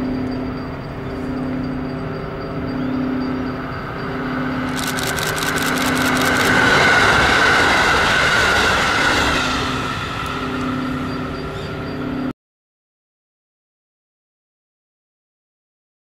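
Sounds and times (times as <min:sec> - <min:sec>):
train running noise rushing: 0:00.0 - 0:12.3.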